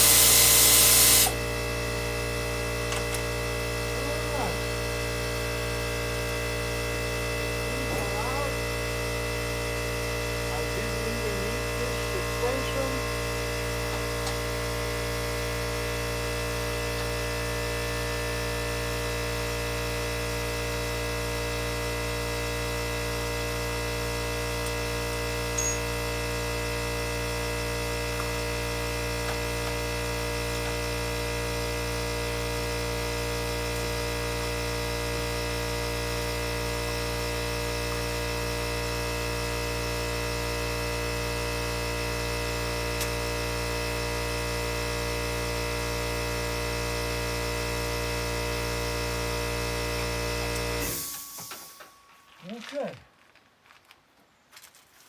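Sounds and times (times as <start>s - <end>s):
steady electrical hum: 0.0s - 52.1s.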